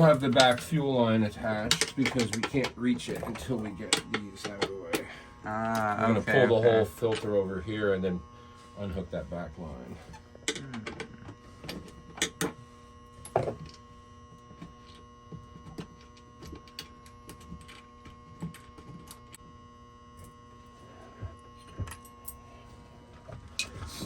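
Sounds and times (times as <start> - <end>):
steady electrical hum: 0.0 - 24.0.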